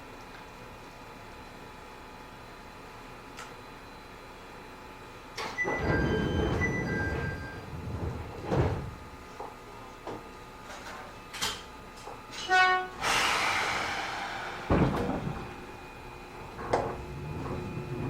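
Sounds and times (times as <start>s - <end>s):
train car clicks and rattles: 5.4s - 12.6s, 14.8s - 18.0s
train horn blast: 12.4s - 13.1s
air hiss: 13.0s - 14.8s
low thump: 14.7s - 15.6s.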